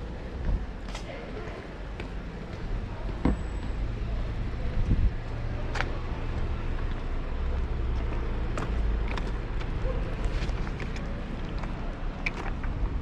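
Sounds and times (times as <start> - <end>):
street and traffic rumble: 0.0 - 13.0.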